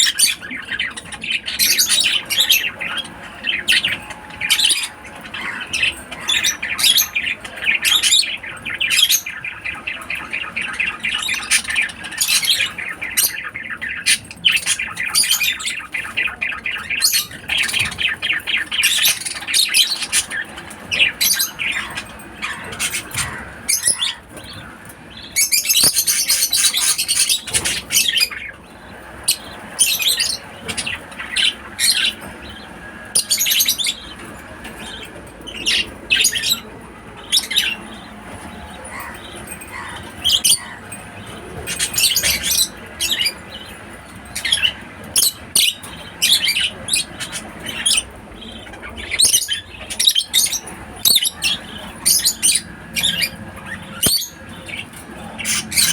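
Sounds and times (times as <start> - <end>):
lovebirds chirping and squawking: 0.0 - 55.9.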